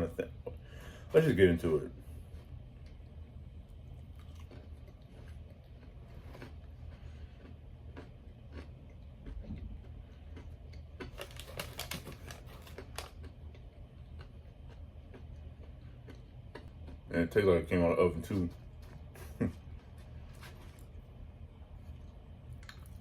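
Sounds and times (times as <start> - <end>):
chewing clicks: 4.0 - 17.0, 22.5 - 23.0.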